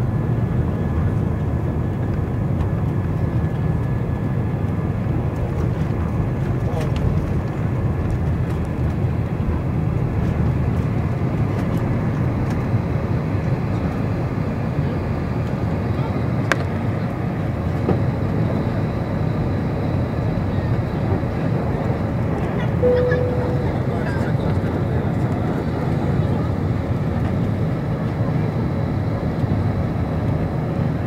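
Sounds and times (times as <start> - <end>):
jet engine and airflow rumble: 0.0 - 31.0
faint high whine: 22.8 - 24.8.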